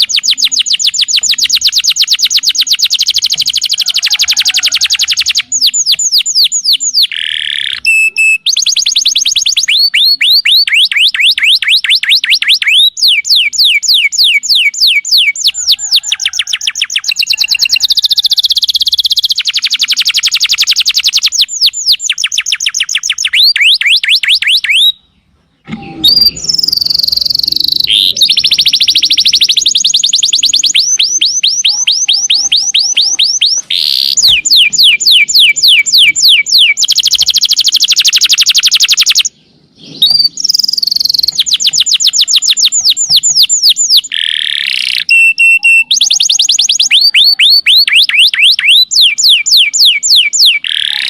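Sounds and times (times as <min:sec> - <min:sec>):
canary singing trills: 0:00.0 - 0:51.0.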